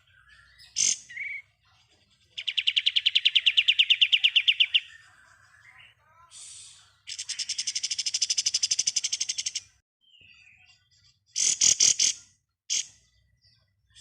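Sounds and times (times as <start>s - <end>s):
songbird rapid trill: 0.0s - 1.5s, 2.3s - 5.9s, 7.1s - 10.4s, 11.3s - 13.2s.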